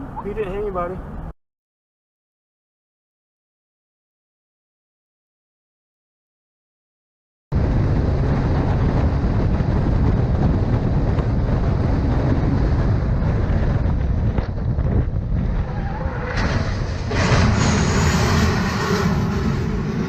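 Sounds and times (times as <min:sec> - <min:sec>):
vehicle noise: 0:00.0 - 0:01.4, 0:07.6 - 0:20.0
wind rumble on microphone: 0:07.5 - 0:20.0.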